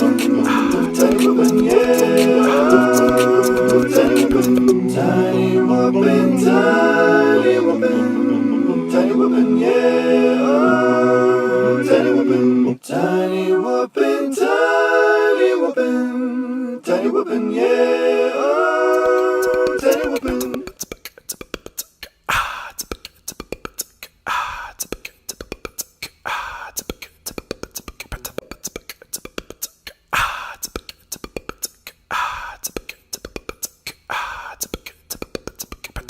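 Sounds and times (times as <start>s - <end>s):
sung bass line: 0.0s - 9.7s
voices singing held chords: 0.0s - 20.7s.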